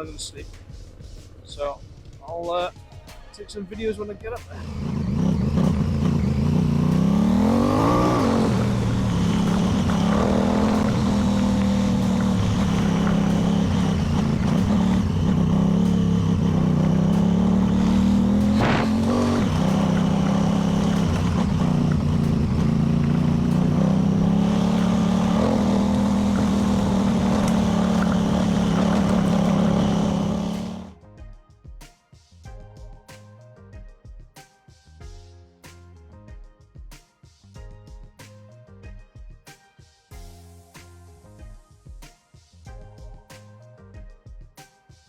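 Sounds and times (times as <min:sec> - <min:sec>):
motorcycle engine accelerating: 0:04.5 - 0:30.9
road and wind noise: 0:04.6 - 0:30.9.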